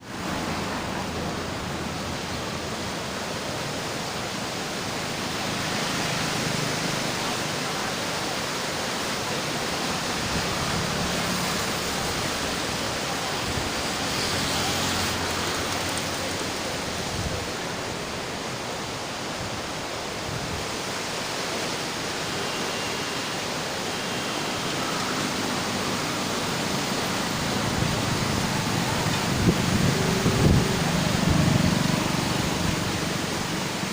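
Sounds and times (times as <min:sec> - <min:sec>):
floodwater rushing: 0:00.0 - 0:33.9.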